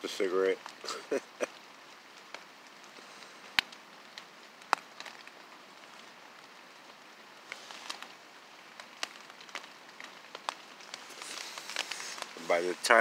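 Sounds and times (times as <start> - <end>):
rain falling steadily: 0.0 - 13.0
sharp drip ticks: 0.6 - 6.6.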